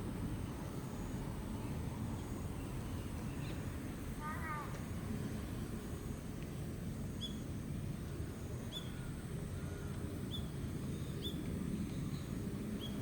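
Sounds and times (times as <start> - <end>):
small bird chirping: 7.1 - 7.5, 8.7 - 13.0.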